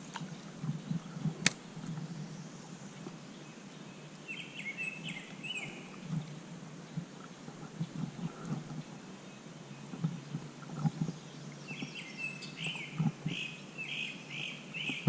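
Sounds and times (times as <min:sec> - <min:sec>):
low background noise: 0:00.0 - 0:15.0
bird chirping: 0:03.3 - 0:06.0, 0:11.1 - 0:15.0.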